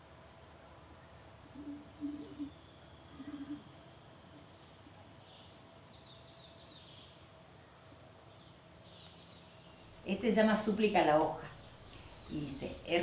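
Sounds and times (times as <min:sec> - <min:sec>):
low bird calls: 0:01.0 - 0:10.2.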